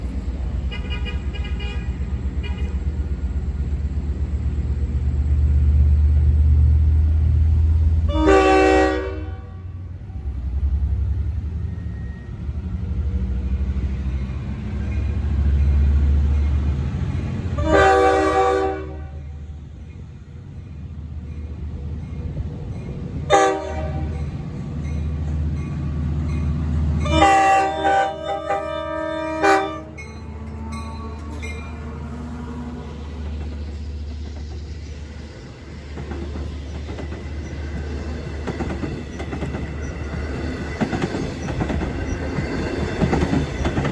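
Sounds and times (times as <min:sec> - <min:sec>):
diesel locomotive rumble: 0:00.0 - 0:43.9
multi-note train horn: 0:08.0 - 0:09.9, 0:17.6 - 0:19.4, 0:23.3 - 0:24.3, 0:27.0 - 0:33.1.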